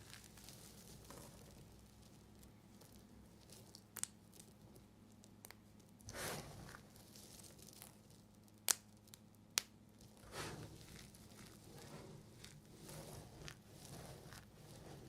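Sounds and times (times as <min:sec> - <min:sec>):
knife cutting soap: 0:10.2 - 0:15.0.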